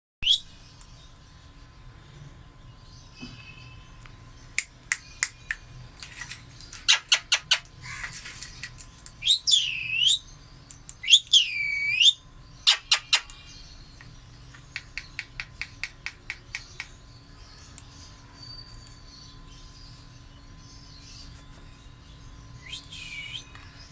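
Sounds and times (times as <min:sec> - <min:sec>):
parrot chirping: 0:06.8 - 0:08.1, 0:09.2 - 0:10.2, 0:11.0 - 0:13.4, 0:22.6 - 0:23.5.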